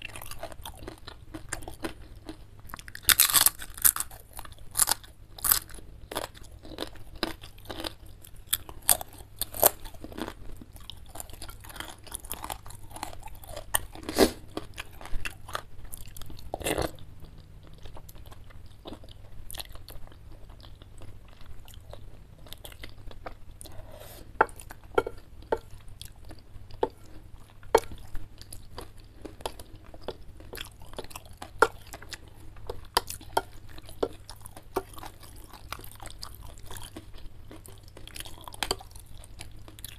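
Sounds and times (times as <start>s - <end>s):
crunching fried chip: 0.0s - 17.0s, 27.7s - 39.9s
chewing noodles: 0.0s - 39.9s.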